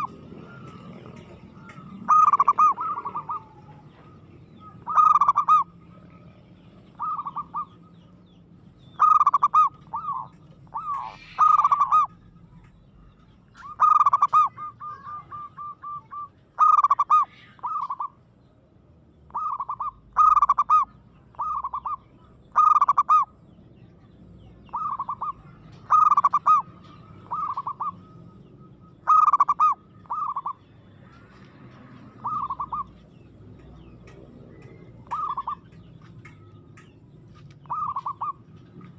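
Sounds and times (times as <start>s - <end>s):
dove cooing: 0.0s - 8.1s, 8.9s - 18.2s, 19.3s - 23.4s, 24.5s - 36.6s, 37.6s - 38.9s.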